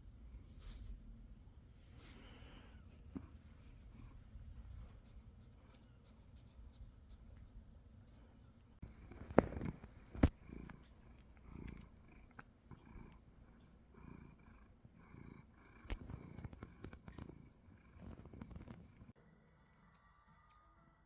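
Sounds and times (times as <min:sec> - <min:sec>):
cat purring: 0:08.8 - 0:19.2.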